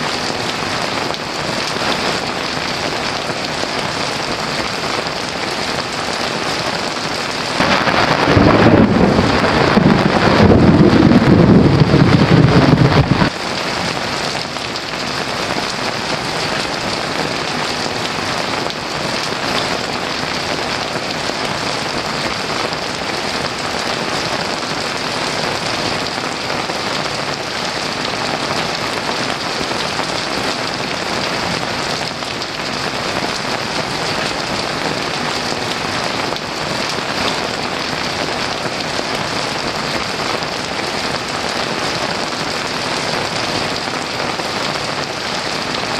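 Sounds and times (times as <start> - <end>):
heavy rain falling: 0.0 - 45.9
low thunder rumble: 7.5 - 13.4.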